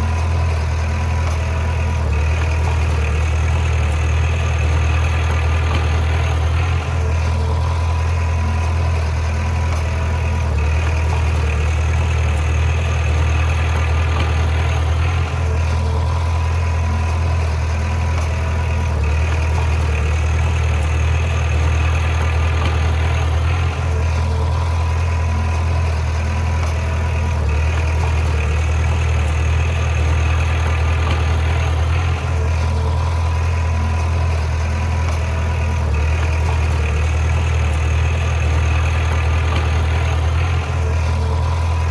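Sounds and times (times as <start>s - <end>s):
bulldozer diesel engine droning: 0.0s - 41.9s.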